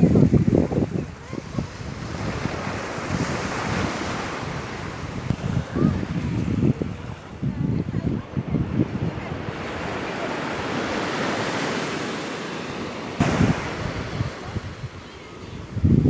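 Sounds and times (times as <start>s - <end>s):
wind buffeting microphone: 0.0s - 11.8s, 12.7s - 16.0s
sea waves breaking on shore: 0.0s - 16.0s.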